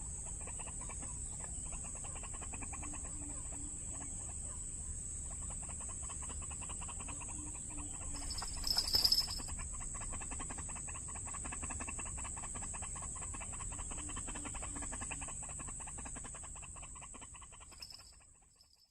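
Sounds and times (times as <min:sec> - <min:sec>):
waterhen clucking calls: 0:00.2 - 0:04.6, 0:05.2 - 0:18.3.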